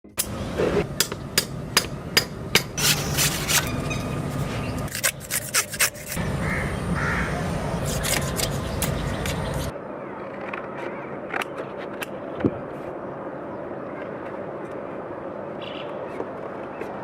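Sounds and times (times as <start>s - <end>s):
tools striking bamboo: 1.0s - 3.7s
rough rasping: 4.9s - 6.2s.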